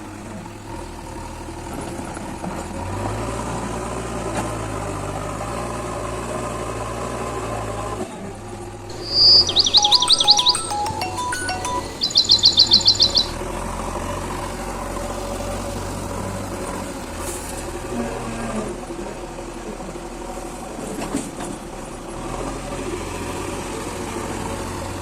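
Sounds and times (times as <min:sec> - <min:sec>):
high chirps: 0:08.9 - 0:13.4.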